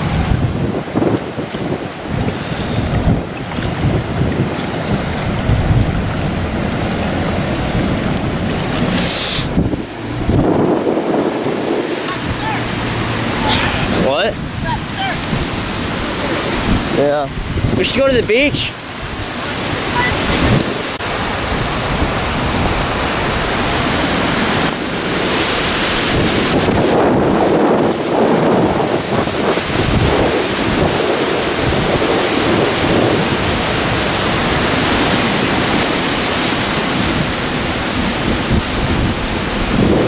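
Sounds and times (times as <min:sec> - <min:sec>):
wind buffeting microphone: 0:00.0 - 0:25.4.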